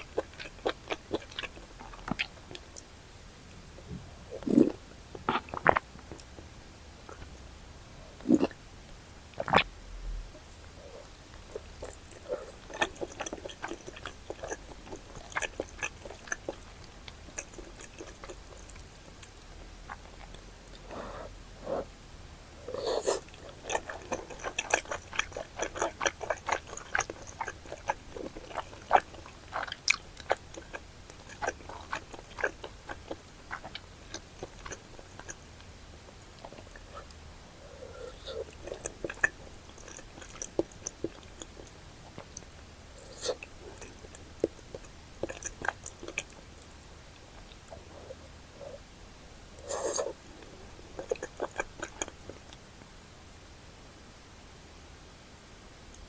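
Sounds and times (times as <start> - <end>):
wet chewing and mouth sounds: 0.0 - 2.9, 4.4 - 6.5, 10.8 - 21.0, 22.6 - 48.8, 49.6 - 52.6.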